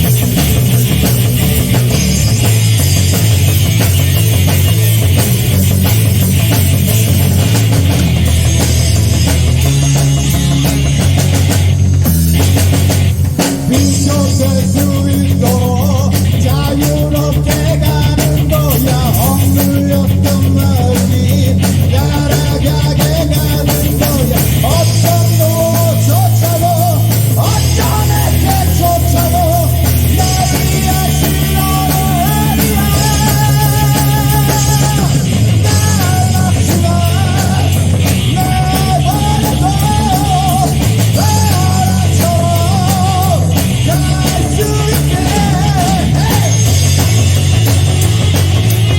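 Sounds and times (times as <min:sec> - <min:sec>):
live heavy metal band: 0:00.0 - 0:48.9
person singing: 0:13.7 - 0:47.0.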